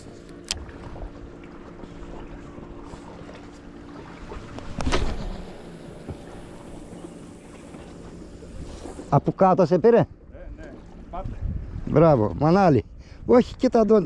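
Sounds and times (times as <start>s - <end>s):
sea waves: 0.0s - 13.4s
wind on microphone: 10.4s - 14.0s.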